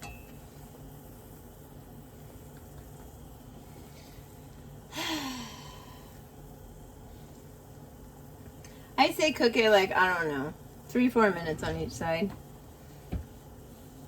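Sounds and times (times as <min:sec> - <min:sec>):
woman sighing: 0:04.9 - 0:06.1.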